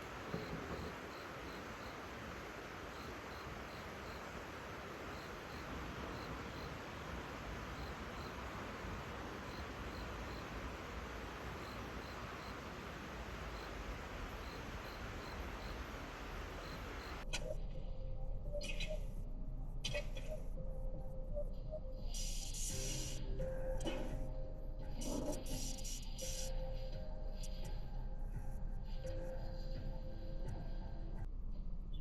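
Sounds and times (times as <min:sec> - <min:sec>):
crickets chirping: 0:00.0 - 0:17.2
steady background hiss: 0:00.0 - 0:17.2, 0:22.0 - 0:23.4, 0:24.6 - 0:28.0.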